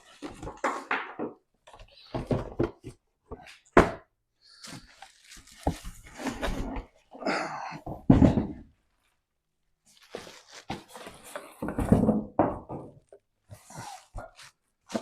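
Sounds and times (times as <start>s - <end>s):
box thumps and knocks: 7.9s - 8.6s
packaging rustling: 9.9s - 11.6s.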